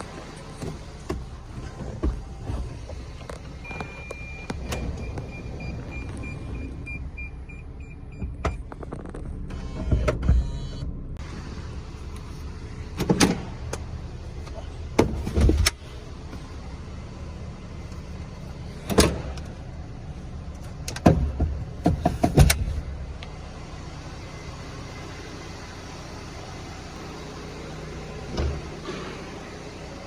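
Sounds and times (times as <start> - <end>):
car engine humming: 0.0 - 30.0
car door clunks and knocks: 20.9 - 22.9.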